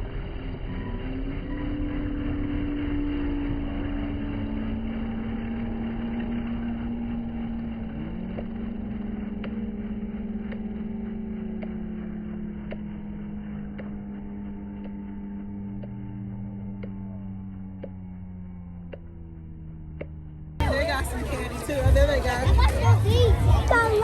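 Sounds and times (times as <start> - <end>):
helicopter flying overhead: 0.0 - 24.0.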